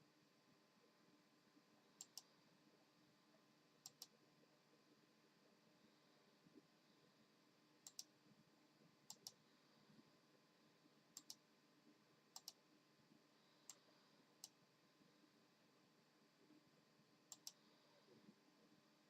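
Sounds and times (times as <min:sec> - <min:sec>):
faint steady hum: 0:00.0 - 0:19.0
sharp little clicks: 0:07.8 - 0:08.1, 0:11.2 - 0:11.4, 0:12.4 - 0:12.6, 0:17.3 - 0:17.6.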